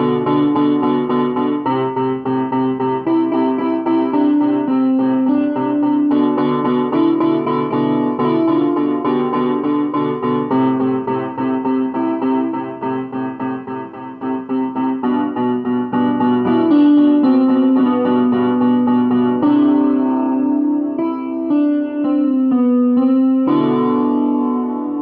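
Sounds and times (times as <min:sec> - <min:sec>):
solo piano melody: 0:00.0 - 0:25.0.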